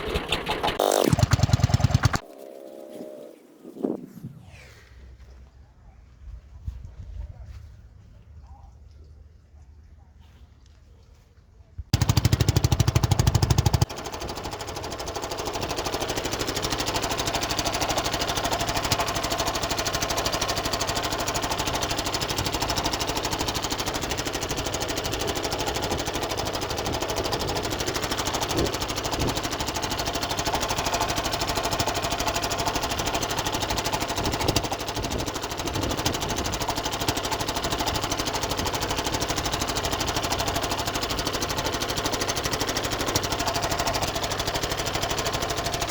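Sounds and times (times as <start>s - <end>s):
small boat engine knocking: 0.0s - 2.2s, 11.9s - 45.9s.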